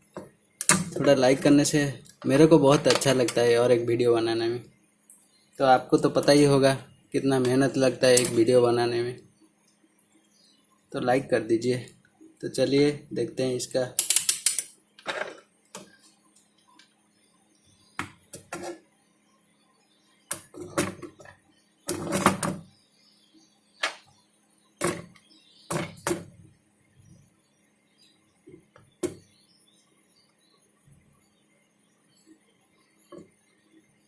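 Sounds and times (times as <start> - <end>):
tools clicking and knocking on workbench: 2.8 - 3.4, 14.0 - 15.9.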